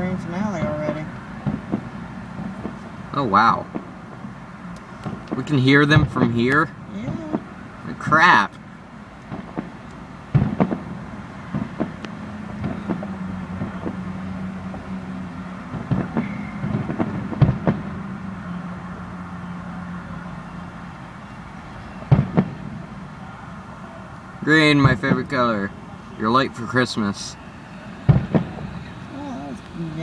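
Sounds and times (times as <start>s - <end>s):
distant fireworks bangs: 0.5s - 4.4s, 5.0s - 8.1s, 9.2s - 18.2s, 21.9s - 23.1s, 24.5s - 25.9s, 26.6s - 29.1s.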